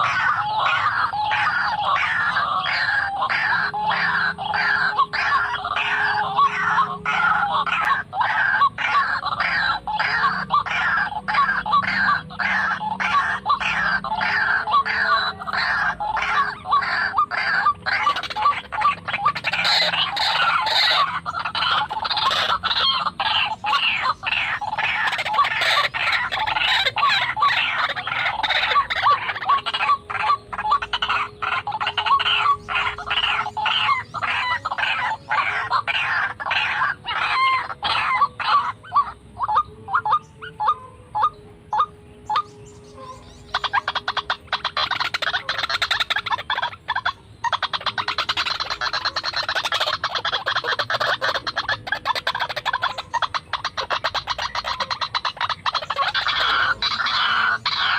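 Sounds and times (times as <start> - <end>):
bird harsh croaking calls: 0.0 - 57.9.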